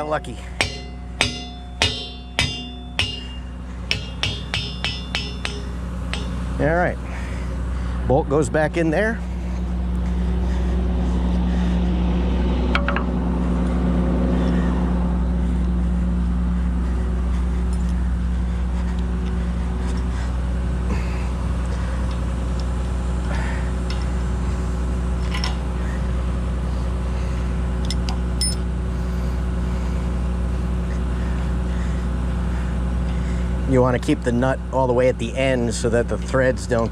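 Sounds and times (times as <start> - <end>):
sharp metal clinks: 0.0 - 6.7
excavator diesel engine idling: 0.0 - 36.9.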